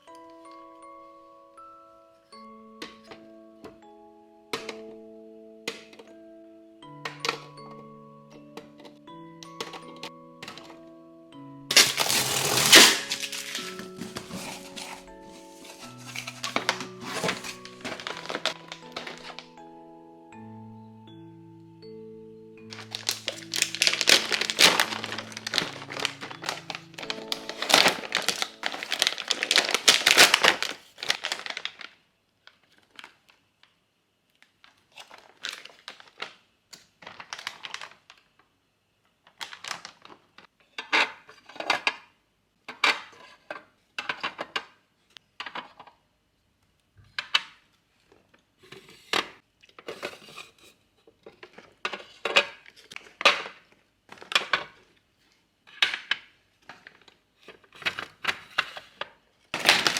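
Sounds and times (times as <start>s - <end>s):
packaging crinkling and tearing: 11.7s - 19.5s, 22.7s - 33.4s, 34.4s - 36.4s, 37.0s - 38.3s, 39.3s - 40.4s, 59.6s - 59.9s.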